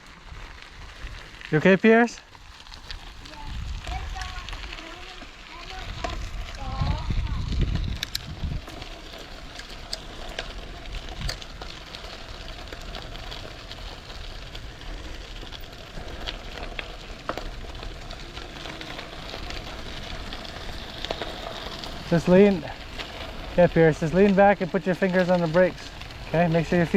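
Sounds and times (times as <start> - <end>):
bicycle tyres hissing on ground: 0.0 - 26.9
wind rumble on microphone: 2.7 - 11.9.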